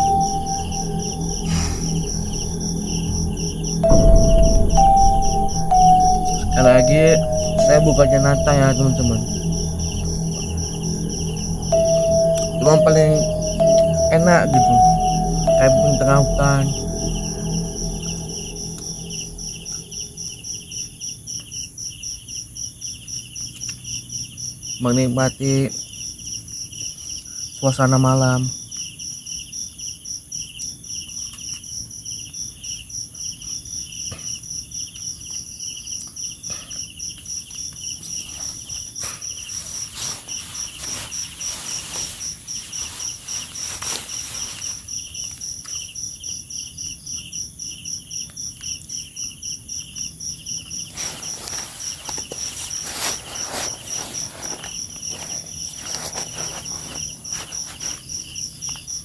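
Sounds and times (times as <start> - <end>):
crickets chirping: 0.0 - 59.0
high insect trill: 0.0 - 59.0
rustling: 37.6 - 45.6, 50.7 - 59.0.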